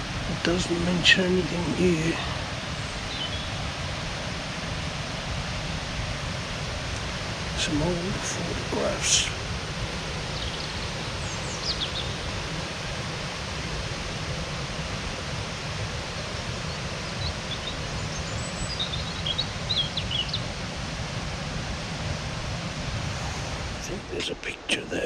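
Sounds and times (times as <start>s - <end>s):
steady low hiss: 0.0s - 25.0s
small birds chirping: 0.3s - 3.7s, 10.2s - 12.4s, 16.2s - 20.6s.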